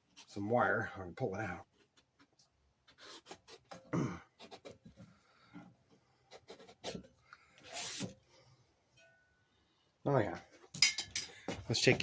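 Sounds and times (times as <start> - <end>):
swab scraping inside metal tube: 7.6 - 8.2.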